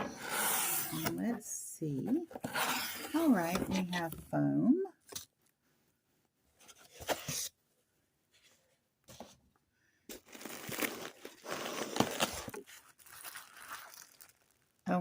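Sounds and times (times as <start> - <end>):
foam packing crinkling and tearing: 10.1 - 14.9.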